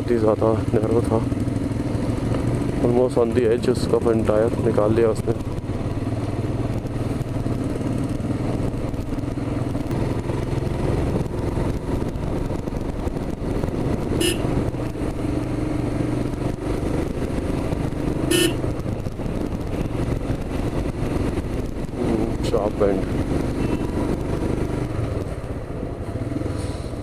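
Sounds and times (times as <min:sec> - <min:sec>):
motorcycle engine running: 0:00.0 - 0:27.0
horn toots: 0:14.2 - 0:14.5, 0:18.3 - 0:18.6.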